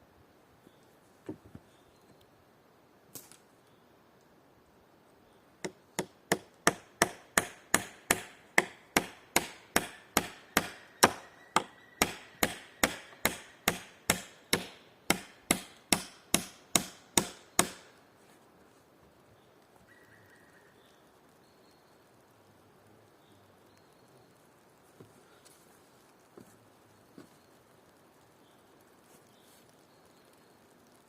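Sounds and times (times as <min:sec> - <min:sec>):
hammer driving nails into wood: 0:05.6 - 0:17.9.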